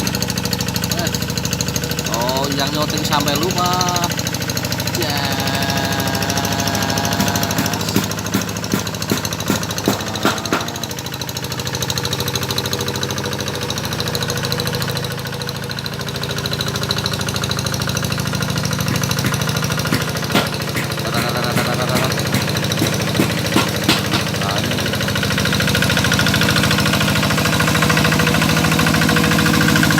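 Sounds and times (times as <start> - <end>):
tractor engine running under load: 0.0 - 29.9
sharp knocks and clatter: 6.4 - 12.1, 17.9 - 29.9.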